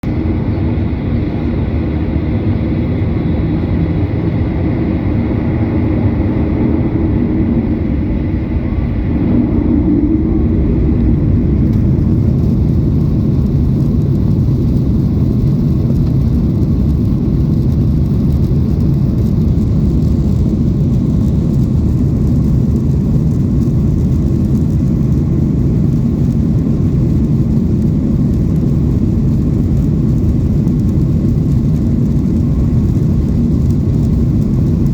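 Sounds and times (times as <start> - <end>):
faint high whine: 0.0 - 16.6
deep engine rumble: 0.0 - 34.9
jet engine cabin noise: 0.0 - 34.9.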